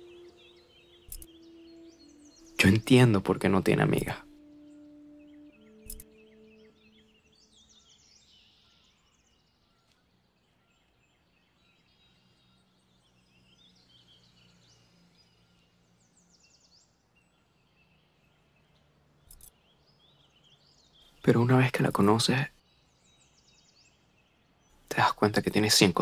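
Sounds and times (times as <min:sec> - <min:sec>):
distant bird chirps: 0:00.0 - 0:26.0.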